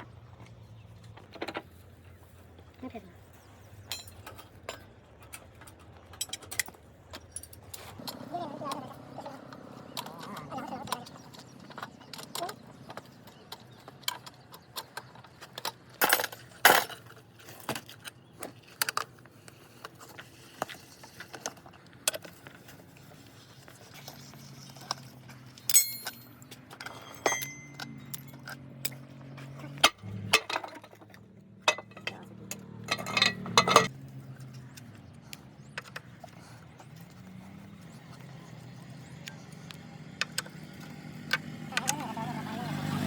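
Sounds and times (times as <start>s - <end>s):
metal tools clinking and knocking: 3.8s - 8.9s, 9.9s - 19.1s, 24.6s - 34.8s.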